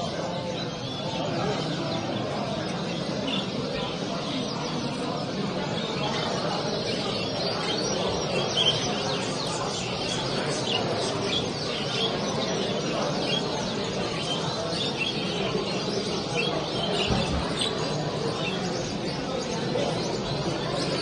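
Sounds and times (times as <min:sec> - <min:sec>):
background murmur: 0:00.0 - 0:21.0
cage birds chirping and singing: 0:00.0 - 0:21.0.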